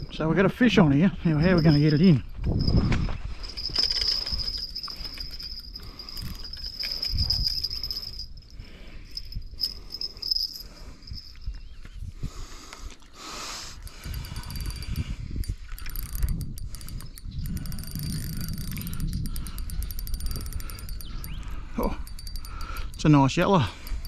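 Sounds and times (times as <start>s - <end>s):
insect chirring: 3.6s - 11.6s, 13.8s - 23.1s.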